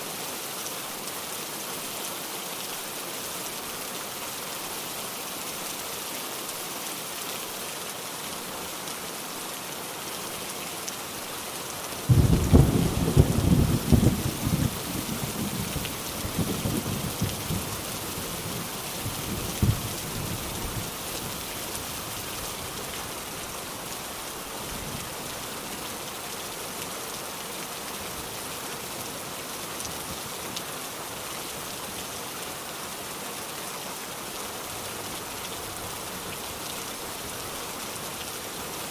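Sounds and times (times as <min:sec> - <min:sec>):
steady rain falling: 0:00.0 - 0:38.9
thunder clap rumbling: 0:12.1 - 0:17.7.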